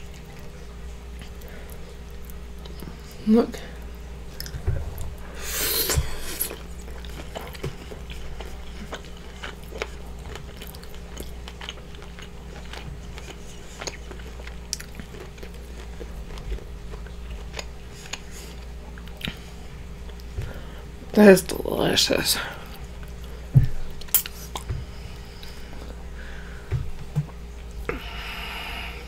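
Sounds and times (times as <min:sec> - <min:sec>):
wet chewing with clicks: 0:03.8 - 0:05.2, 0:05.8 - 0:20.6, 0:22.7 - 0:26.0
person biting food: 0:05.4 - 0:07.6, 0:24.0 - 0:24.7.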